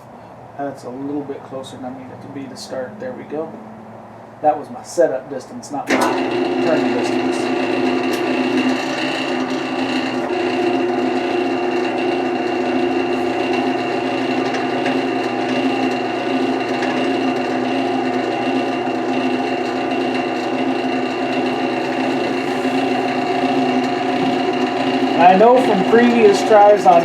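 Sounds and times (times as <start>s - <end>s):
drill bit boring into wood: 5.9s - 27.0s
wood lathe running: 5.9s - 27.0s.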